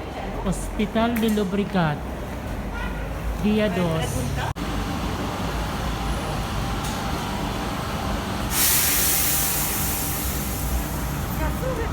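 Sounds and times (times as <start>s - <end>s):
train rumble: 4.1s - 11.9s
compressed air hiss: 8.4s - 11.5s.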